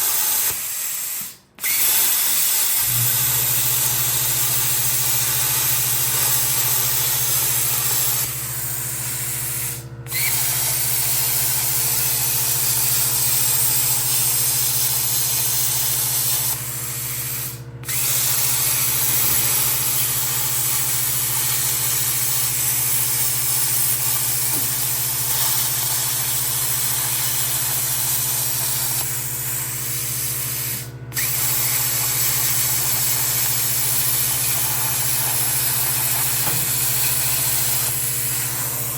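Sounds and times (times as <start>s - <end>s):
plasma cutter hissing: 0.0s - 38.9s.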